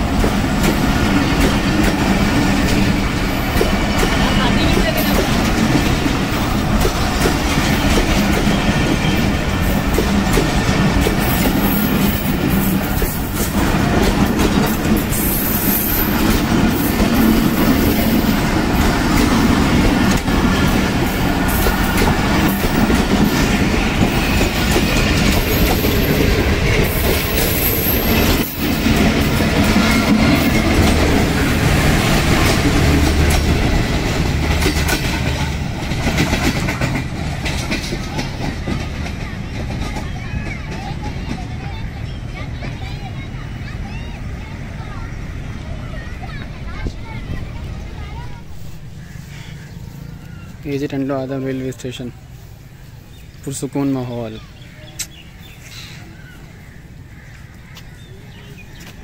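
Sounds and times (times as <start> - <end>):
train wheels clattering over joints: 0.0 - 44.1
train wheel squeals: 14.7 - 18.4, 20.4 - 29.0.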